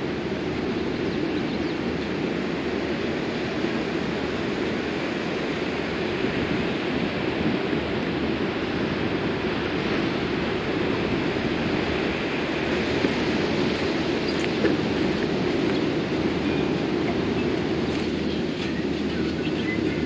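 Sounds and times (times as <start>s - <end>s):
car engine deep rumble: 12.7s - 20.0s.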